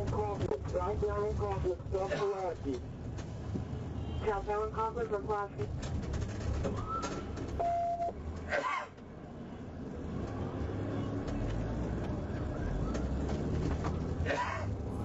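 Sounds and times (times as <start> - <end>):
vehicle engine low rumble: 0.0 - 15.0
short single-tone beep: 7.6 - 8.1.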